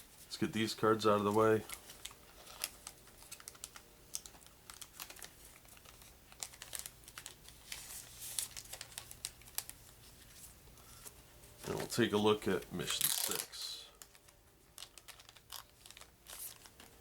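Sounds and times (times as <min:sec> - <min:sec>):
cards clicking and rustling: 0:12.8 - 0:17.0.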